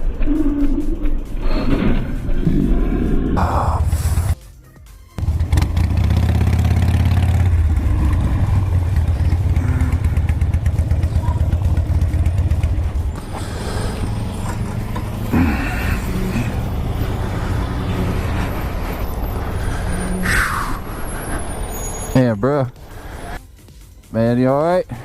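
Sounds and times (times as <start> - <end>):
motorcycle engine droning: 5.2 - 22.2.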